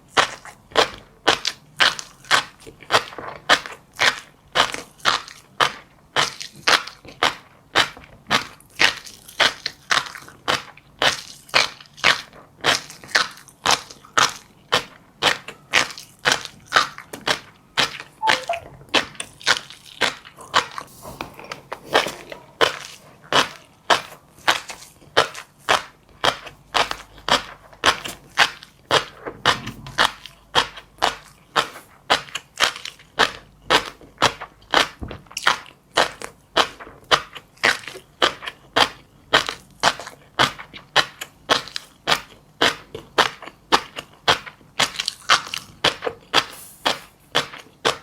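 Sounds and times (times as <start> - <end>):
chewing crunchy seeds: 0.1 - 48.0.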